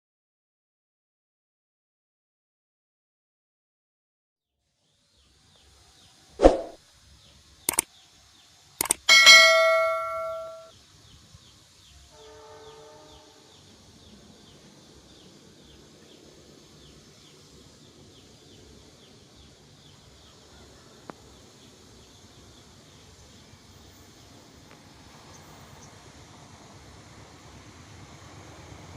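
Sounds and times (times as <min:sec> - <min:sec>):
click: 0:08.8 - 0:09.1
faint high chirps: 0:08.8 - 0:10.7
distant train horn: 0:12.1 - 0:13.7.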